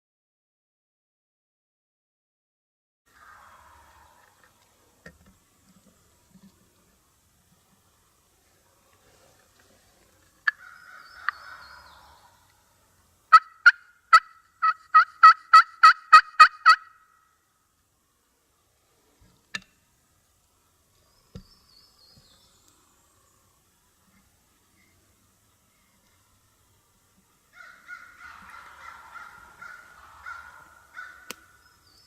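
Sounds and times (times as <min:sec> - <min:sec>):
soft raspy turkey call: 0:03.1 - 0:04.7, 0:10.4 - 0:12.7, 0:13.3 - 0:17.2, 0:27.5 - 0:31.8
turkey yelping: 0:13.3 - 0:17.0, 0:27.6 - 0:31.6.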